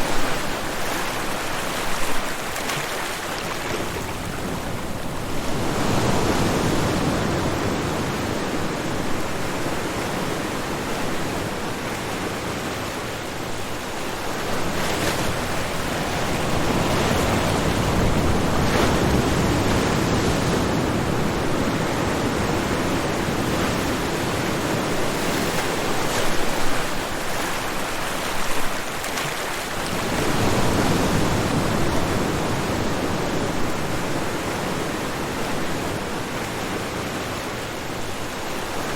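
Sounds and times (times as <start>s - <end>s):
water splashes: 0.0s - 5.2s, 24.8s - 32.3s
ocean waves breaking on shore: 0.0s - 38.9s.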